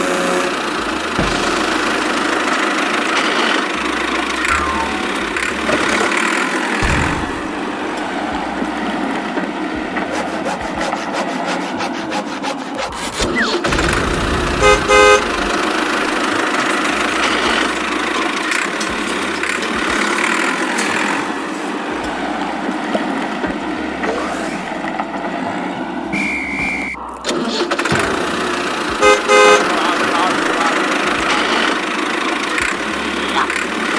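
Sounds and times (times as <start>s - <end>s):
horn tooting: 0.0s - 7.5s, 14.4s - 16.1s, 26.1s - 27.1s, 28.9s - 33.9s
vehicle engine running: 0.0s - 33.9s.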